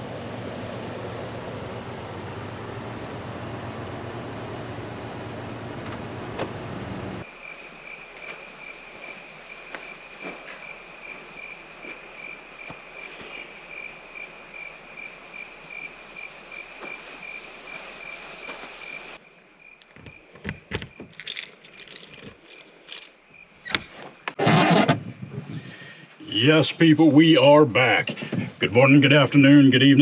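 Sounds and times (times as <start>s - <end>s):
insects chirping in a high trill: 7.2s - 23.8s
small metal things clinking: 20.4s - 23.2s.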